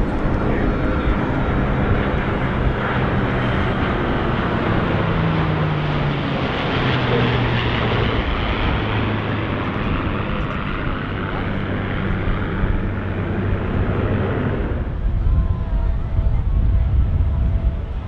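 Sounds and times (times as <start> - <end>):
jet aircraft rushing past: 0.0 - 18.0
low engine drone: 0.0 - 18.0.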